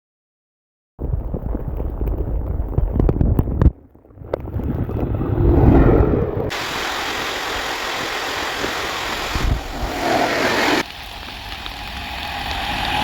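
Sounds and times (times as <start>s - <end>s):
wind buffeting microphone: 1.0s - 10.8s
heavy rain hissing: 6.5s - 13.0s.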